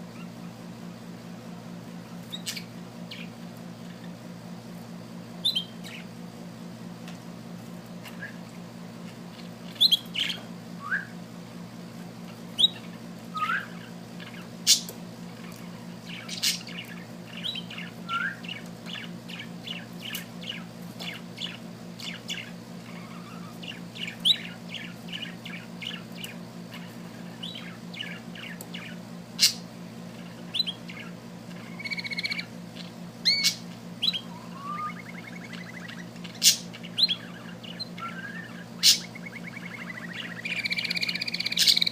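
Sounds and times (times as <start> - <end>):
steady low hum: 0.0 - 41.9
small bird singing: 2.2 - 3.4, 5.4 - 6.2, 9.3 - 11.2, 12.5 - 41.9.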